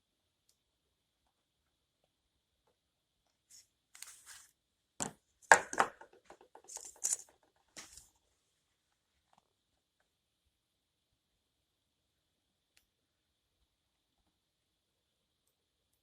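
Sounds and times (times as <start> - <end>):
small objects clicking and knocking: 5.0 - 8.1.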